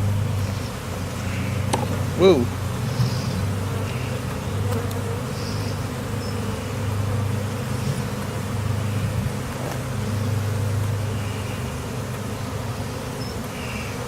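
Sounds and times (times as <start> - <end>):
honey bees buzzing: 0.0 - 14.0.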